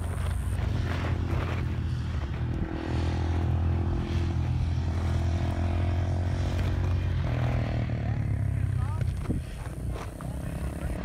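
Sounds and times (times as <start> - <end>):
engine droning uphill: 0.0 - 11.0.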